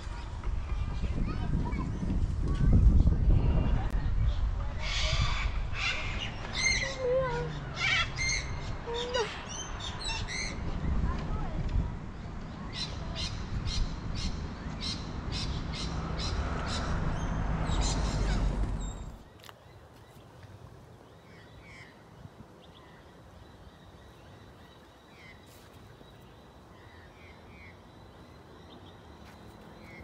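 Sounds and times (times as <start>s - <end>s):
harsh bird calls: 4.3s - 11.0s, 12.6s - 19.5s
low rumble: 7.2s - 19.3s.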